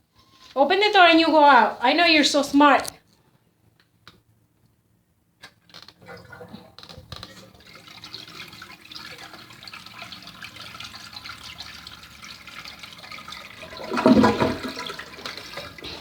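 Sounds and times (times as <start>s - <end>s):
toilet flushing: 6.0s - 16.0s.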